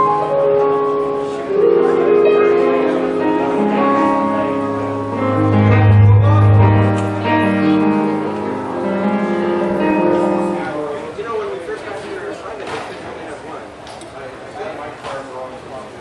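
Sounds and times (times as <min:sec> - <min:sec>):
keyboard playing held chords: 0:00.0 - 0:11.0
deep bass note: 0:02.8 - 0:10.7.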